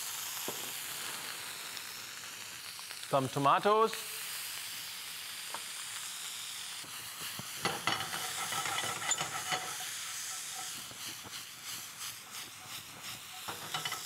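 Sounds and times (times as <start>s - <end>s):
food sizzling in a frying pan: 0.0s - 14.0s
pan scraping and knocking: 7.6s - 10.8s, 13.3s - 14.0s.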